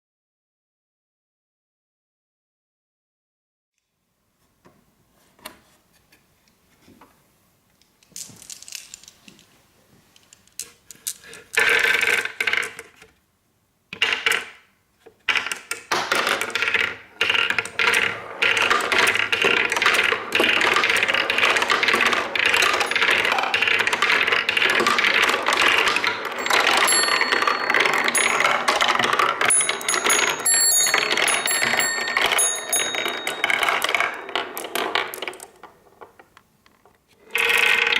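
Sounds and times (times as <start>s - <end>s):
marbles rattling down wooden run: 16.1s - 35.6s
high ringing pings: 26.4s - 34.4s.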